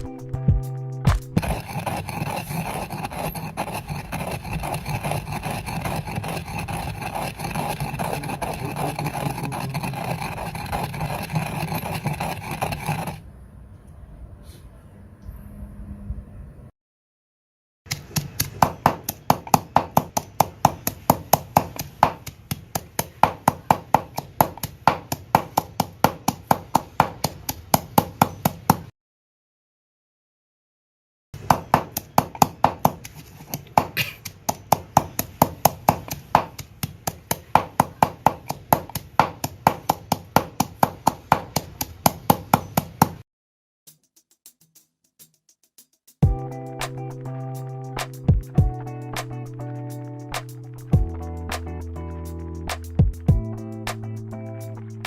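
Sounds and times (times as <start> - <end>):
pestle pounding in a mortar: 1.1 - 13.2, 17.9 - 28.9, 31.4 - 43.2.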